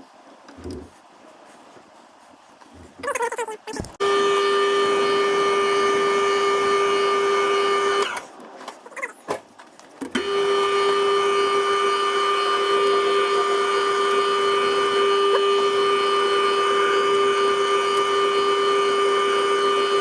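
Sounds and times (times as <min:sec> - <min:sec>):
lathe motor whining: 0:04.0 - 0:08.3, 0:10.1 - 0:20.0.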